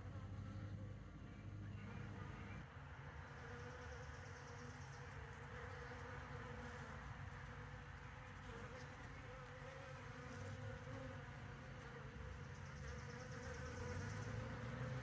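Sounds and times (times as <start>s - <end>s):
bees buzzing: 8.2s - 15.0s.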